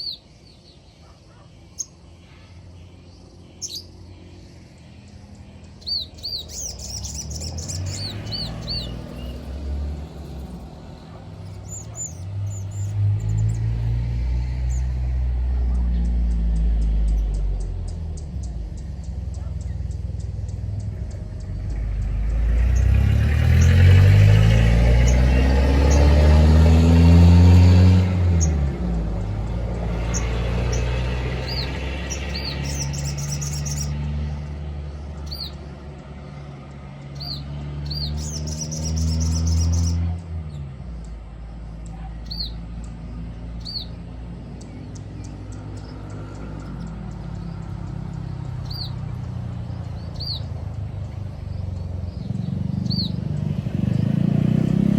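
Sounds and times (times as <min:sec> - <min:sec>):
bird chirping: 0:00.0 - 0:54.9
bird trills: 0:03.5 - 0:04.0, 0:05.0 - 0:13.6, 0:30.0 - 0:34.0, 0:44.6 - 0:54.0
vehicle engine revving: 0:05.1 - 0:54.9.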